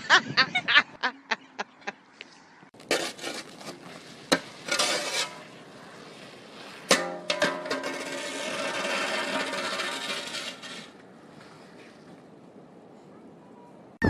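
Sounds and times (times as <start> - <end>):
person laughing: 0.0 - 2.0
scraping and clattering: 2.8 - 5.6, 6.8 - 11.0.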